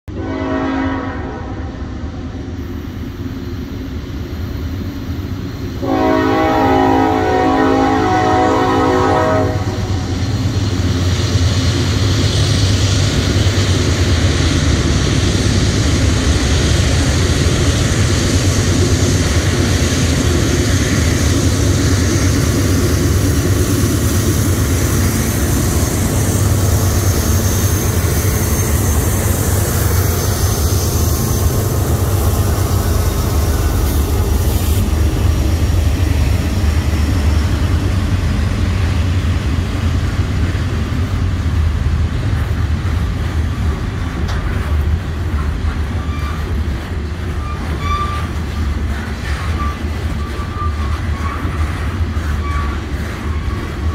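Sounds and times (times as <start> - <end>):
locomotive horn chord: 0.1 - 1.8, 5.8 - 10.0
diesel locomotives droning: 0.1 - 53.9
freight cars rolling on rails: 3.3 - 53.9.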